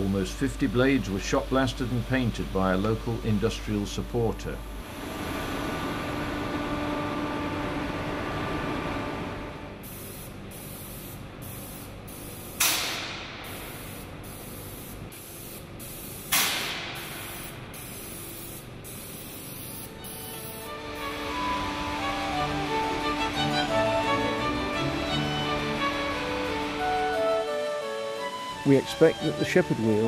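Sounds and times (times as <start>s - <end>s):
air spray gun hissing: 9.8s - 21.4s.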